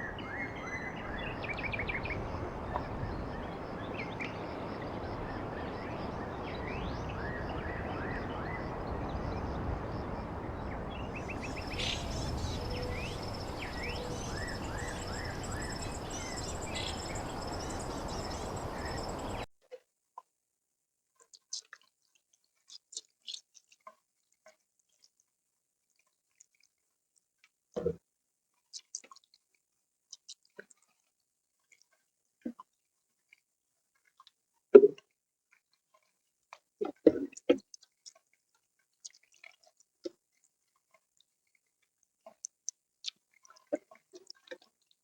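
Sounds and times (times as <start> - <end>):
small birds chirping: 0.0 - 19.5
steady background hiss: 0.0 - 19.5
thin high steady tone: 0.1 - 19.5.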